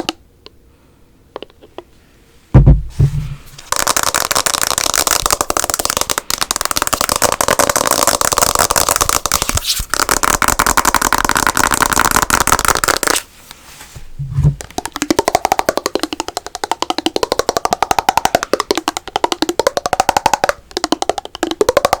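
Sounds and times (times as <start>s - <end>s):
low thump: 2.6s - 3.5s
fast tapping and scratching: 3.6s - 13.3s, 14.5s - 22.0s.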